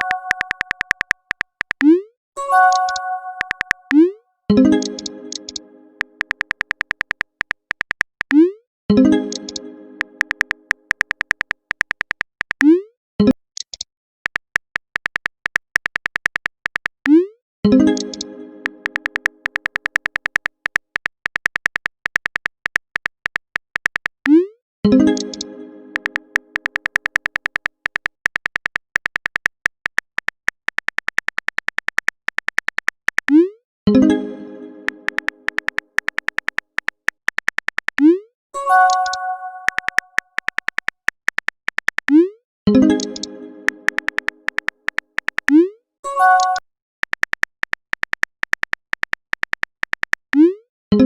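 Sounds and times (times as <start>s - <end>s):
ringing message chime: 0.0s - 0.9s, 2.4s - 4.0s, 38.6s - 40.1s, 46.1s - 46.6s
typing clicks: 0.0s - 4.1s, 4.7s - 8.5s, 9.2s - 12.8s, 13.6s - 17.2s, 17.8s - 24.4s, 25.0s - 33.4s, 34.9s - 38.1s, 38.7s - 42.2s, 42.9s - 45.6s, 46.2s - 50.5s
brief electronic chime: 2.4s - 3.7s
chord: 24.9s - 26.3s, 34.0s - 35.1s, 42.8s - 43.9s.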